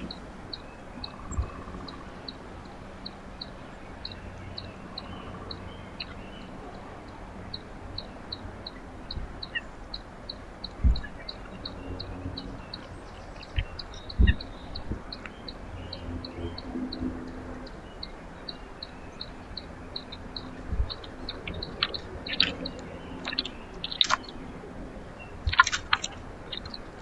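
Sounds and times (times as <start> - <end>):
faint low hum: 0.0 - 27.0
dull low thump: 10.8 - 11.1.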